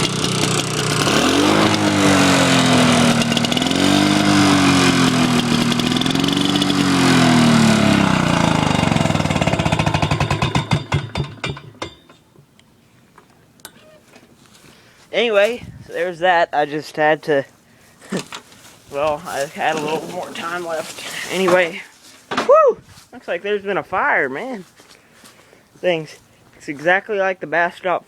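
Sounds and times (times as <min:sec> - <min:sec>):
small engine running and dying: 0:00.0 - 0:11.8.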